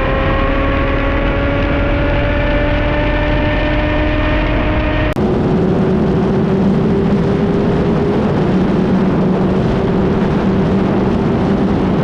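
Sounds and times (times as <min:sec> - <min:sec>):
motorcycle engine steady: 0:00.0 - 0:12.0
broad rush of noise: 0:04.4 - 0:12.0.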